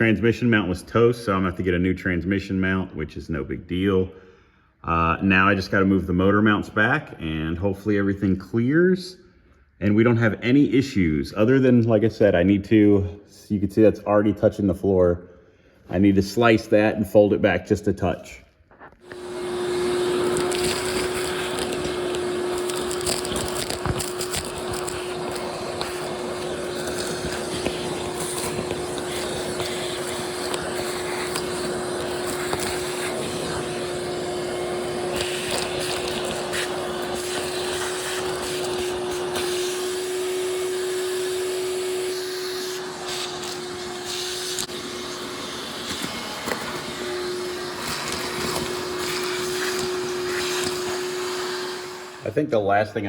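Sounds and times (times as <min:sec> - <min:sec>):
cutoff tool cutting sheet metal: 0:19.0 - 0:39.8.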